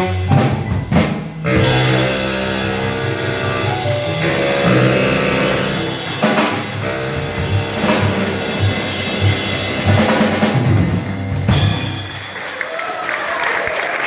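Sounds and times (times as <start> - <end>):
low bass line: 0.0 - 12.0
jazz band playing: 0.0 - 12.6
drum kit: 0.0 - 13.0
cymbal crashes: 1.5 - 12.4.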